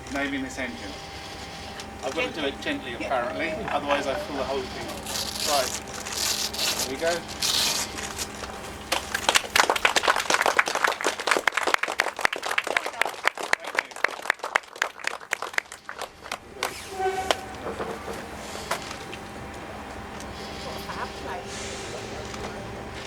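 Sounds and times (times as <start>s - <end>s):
voices: 0.0s - 14.2s, 15.7s - 23.0s
crowd clapping: 7.9s - 16.8s.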